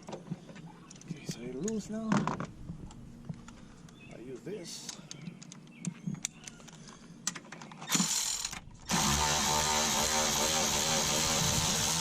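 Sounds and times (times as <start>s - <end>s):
tool clicks and rattles: 4.9s - 9.3s.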